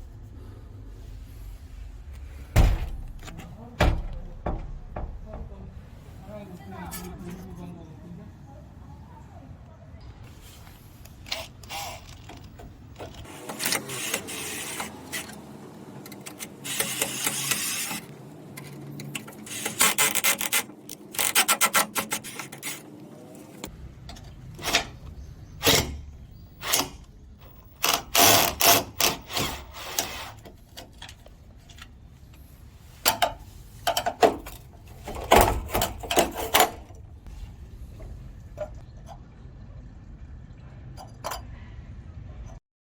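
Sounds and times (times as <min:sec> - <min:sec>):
sharp clicks and knocks: 0:02.6 - 0:05.6.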